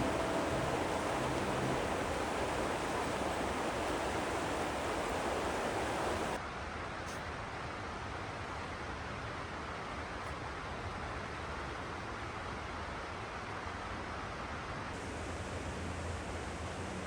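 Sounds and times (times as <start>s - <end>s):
creek water rushing: 0.0s - 6.4s, 15.0s - 17.0s.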